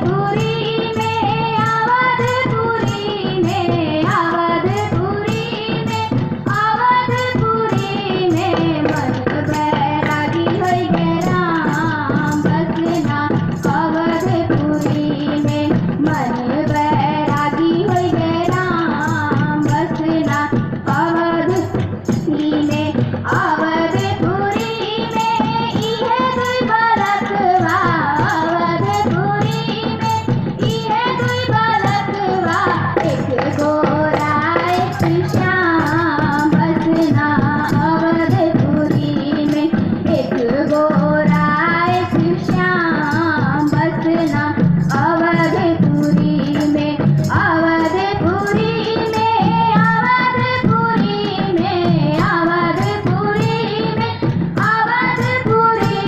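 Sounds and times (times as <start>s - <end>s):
song with accompaniment: 0.0s - 56.0s
steady percussive beat: 0.0s - 56.0s.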